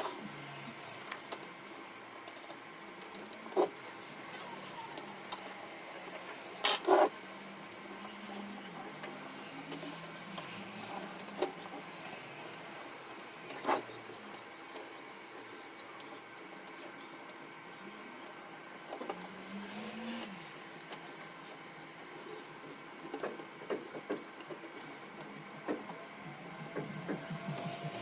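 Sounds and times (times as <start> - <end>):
printer motor hum: 0.0 - 28.0.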